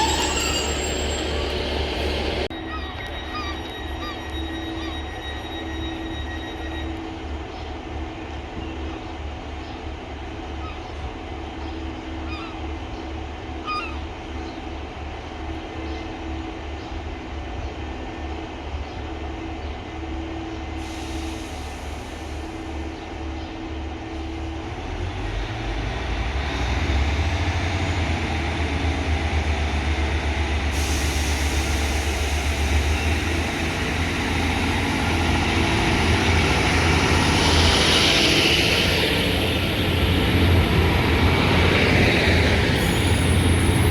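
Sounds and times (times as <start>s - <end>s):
train diesel engine throb: 0.0s - 43.9s
hiss: 20.8s - 22.7s, 30.7s - 35.3s.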